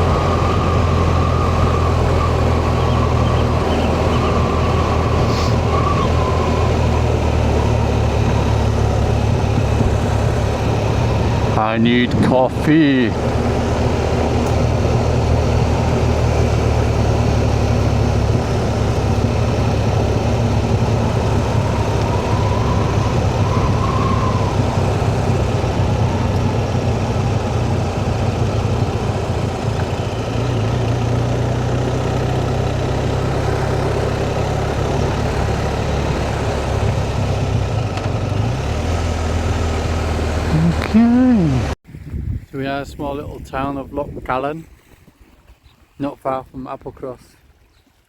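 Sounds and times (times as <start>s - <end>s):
wind noise: 0.0s - 30.3s, 40.6s - 45.8s
motorcycle engine running: 0.0s - 41.8s.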